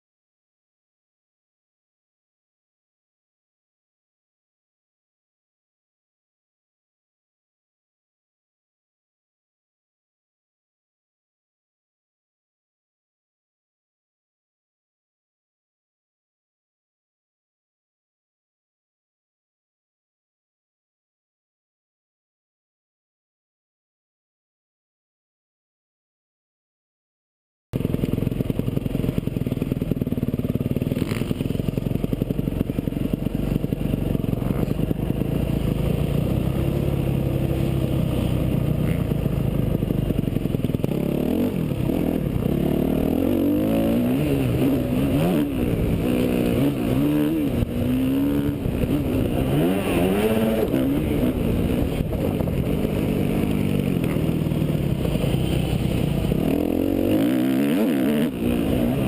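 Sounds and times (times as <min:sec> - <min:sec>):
motocross bike engine revving: 0:27.8 - 0:59.0.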